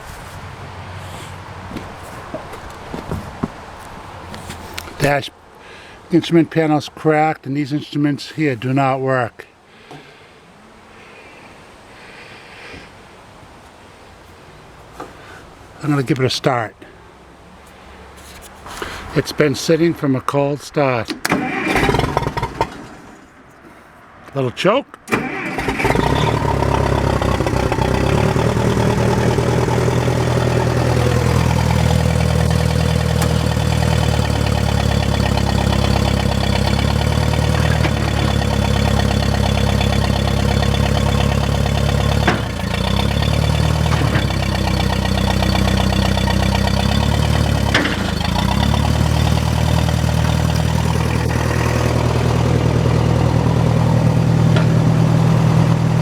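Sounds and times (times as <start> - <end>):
loader engine idling: 21.2 - 23.3, 25.1 - 56.0.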